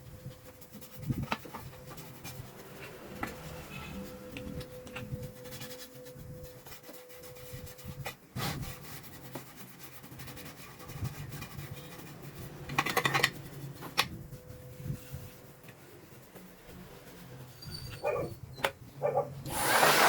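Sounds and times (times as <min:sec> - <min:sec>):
hand scraping and rubbing: 0:00.0 - 0:18.4
rasping burst: 0:19.5 - 0:20.0.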